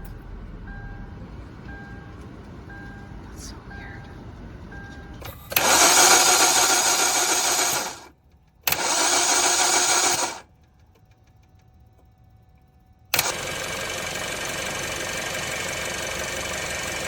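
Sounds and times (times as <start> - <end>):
engine running: 0.0 - 17.0
car starter cranking: 5.1 - 11.4, 13.1 - 17.0.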